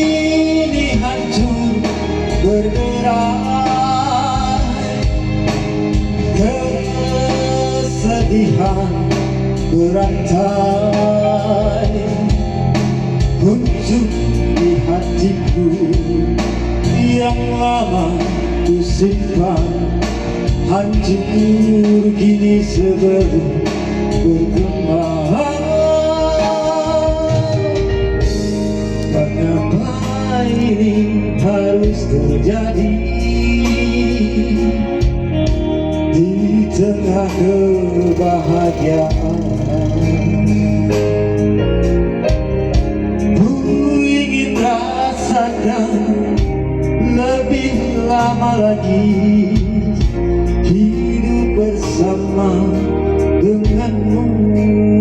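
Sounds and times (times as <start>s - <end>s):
man singing: 0.0s - 5.1s.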